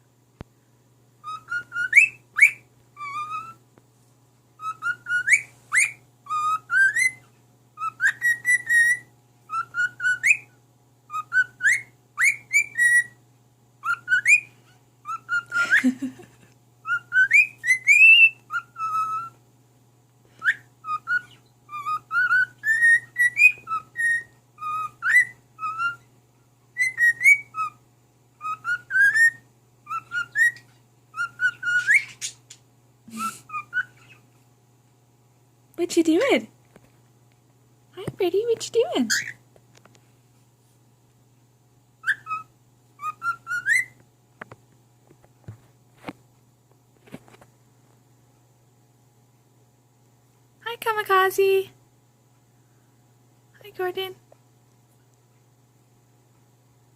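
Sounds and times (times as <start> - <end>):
cockatiel whistling: 1.2 - 3.6, 4.6 - 10.5, 11.1 - 13.2, 13.8 - 16.2, 16.8 - 19.4, 20.4 - 26.1, 26.8 - 27.8, 28.4 - 32.4, 33.1 - 34.2, 39.1 - 39.4, 42.0 - 44.0.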